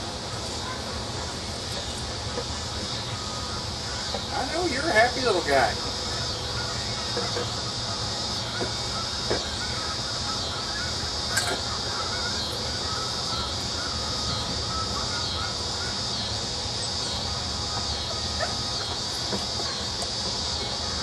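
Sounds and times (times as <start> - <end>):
pulsing high-pitched drone: 0.0 - 21.0
puppies squeaking and whimpering: 2.9 - 21.0.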